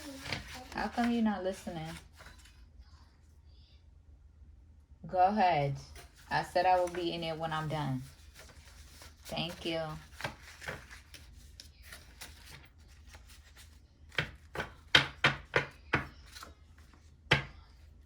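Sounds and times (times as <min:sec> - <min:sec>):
sharp knocks on hard surface: 0:14.2 - 0:16.1.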